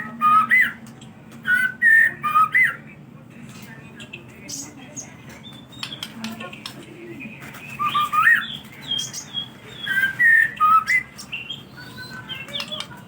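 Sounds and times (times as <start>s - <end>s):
bird singing whistled notes: 7.7s - 12.8s.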